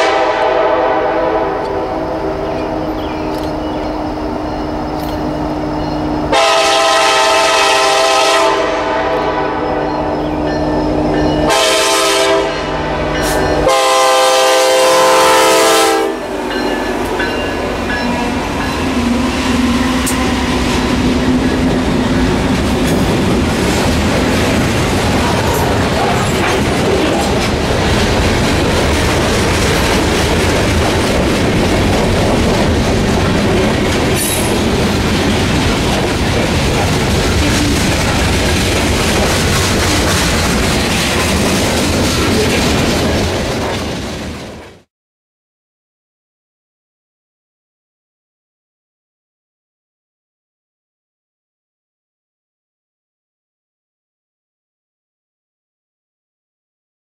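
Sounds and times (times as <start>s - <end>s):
train air horn blasts: 0.0s - 3.0s, 6.3s - 9.9s, 11.4s - 16.5s
freight cars rumbling and clattering: 2.5s - 6.3s, 16.4s - 44.8s
wheels clicking over rail joints: 20.9s - 44.8s.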